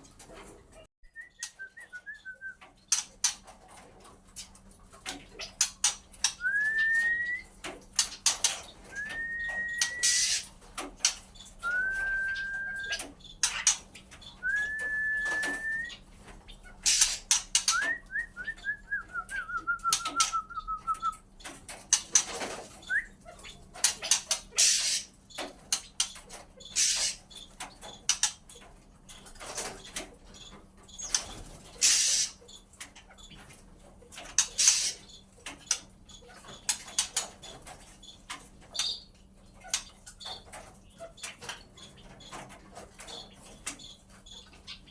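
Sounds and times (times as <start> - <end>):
bird flapping and rustling: 0.0 - 0.8, 2.6 - 38.8
bird whistling: 1.1 - 2.6, 6.3 - 7.5, 8.9 - 10.5, 11.6 - 13.6, 14.4 - 16.0, 16.9 - 21.2, 22.8 - 23.2.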